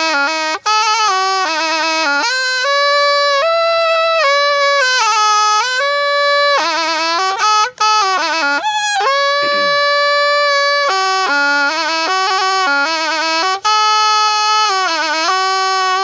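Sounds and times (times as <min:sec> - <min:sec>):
reed oboe solo melody: 0:00.0 - 0:16.0.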